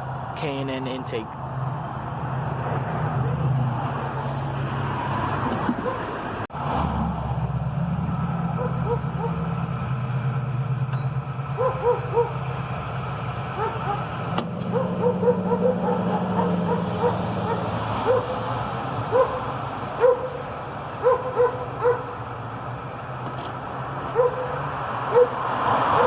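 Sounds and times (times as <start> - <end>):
dog yipping: 11.6 - 12.3, 14.7 - 18.4, 20.0 - 20.4, 21.0 - 22.1, 24.1 - 25.4.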